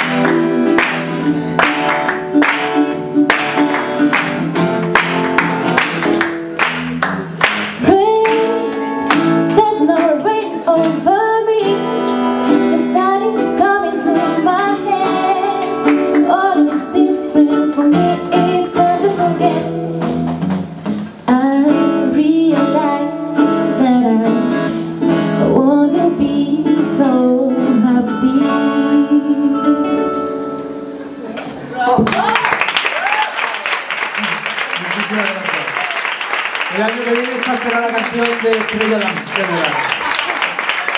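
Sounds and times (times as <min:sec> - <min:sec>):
acoustic guitar strumming: 0:00.0 - 0:31.8
person singing: 0:07.8 - 0:20.0, 0:25.4 - 0:30.2.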